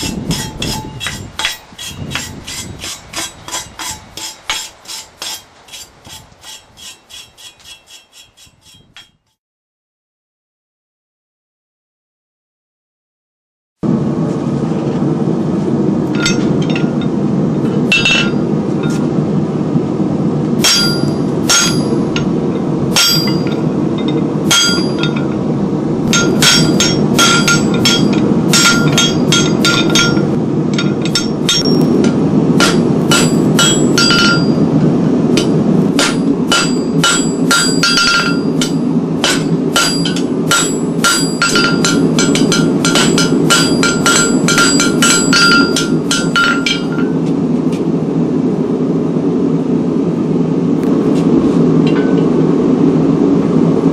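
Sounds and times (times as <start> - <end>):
forging hammer mechanical rumble: 0.0 - 9.4, 13.8 - 53.9
hammer striking metal: 0.0 - 9.4, 16.1 - 17.1, 17.8 - 19.0, 20.6 - 22.3, 22.9 - 25.4, 26.1 - 34.7, 35.3 - 47.2.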